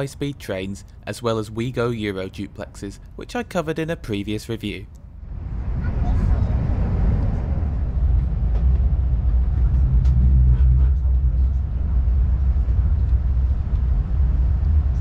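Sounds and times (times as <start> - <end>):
train cabin low rumble: 5.0 - 15.0.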